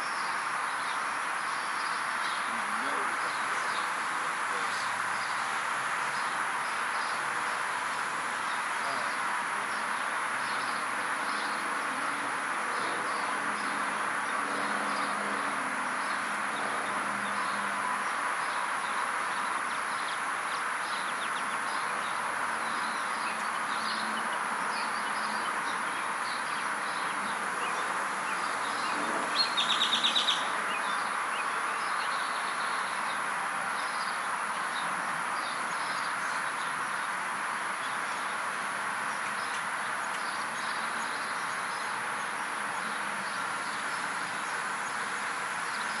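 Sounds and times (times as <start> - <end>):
birds chirping: 0.0 - 46.0
steady background noise: 0.0 - 46.0
loud rapid bird trill: 20.8 - 33.2.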